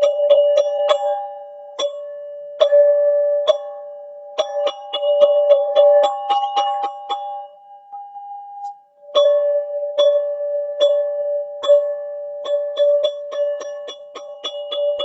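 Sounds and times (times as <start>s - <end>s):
two-tone chime strikes: 4.4s - 15.0s.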